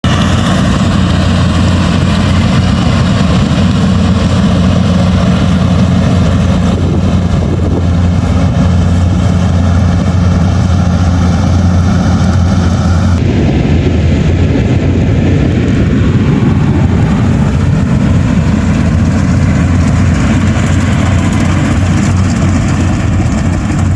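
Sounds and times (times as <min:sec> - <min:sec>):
combine harvester engine running: 0:00.0 - 0:23.9.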